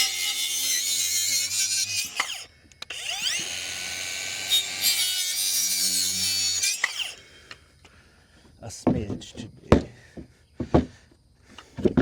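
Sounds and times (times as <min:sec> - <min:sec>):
electric saw cutting wood: 0:00.0 - 0:07.3.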